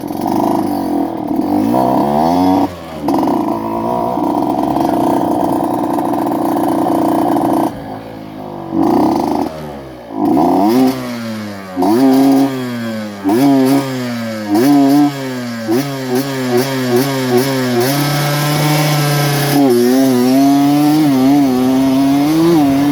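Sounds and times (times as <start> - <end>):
motorcycle engine revving: 0.0 - 22.9.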